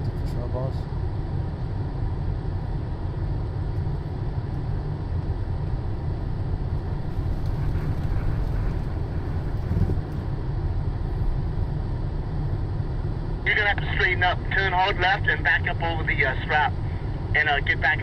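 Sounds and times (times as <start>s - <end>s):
truck engine rumbling: 4.6s - 18.0s.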